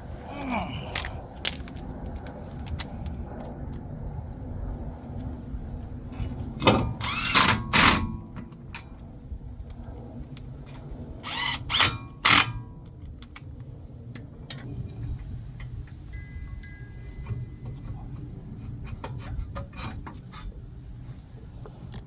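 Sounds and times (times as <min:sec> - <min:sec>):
power tool driving fasteners: 0:11.3 - 0:12.5.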